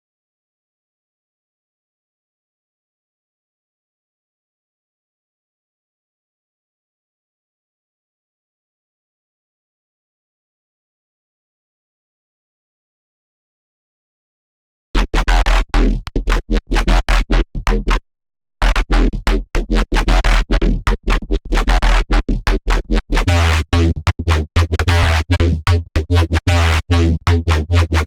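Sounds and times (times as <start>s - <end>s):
heavy sub-bass: 15.0s - 18.0s, 18.6s - 28.0s
chopped synthesizer notes: 18.6s - 28.0s.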